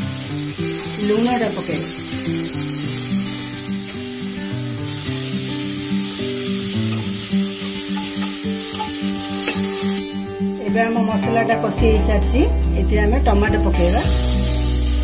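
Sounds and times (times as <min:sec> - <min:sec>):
onions sizzling in oil: 0:00.0 - 0:10.1, 0:13.8 - 0:15.0
background music: 0:00.0 - 0:15.0.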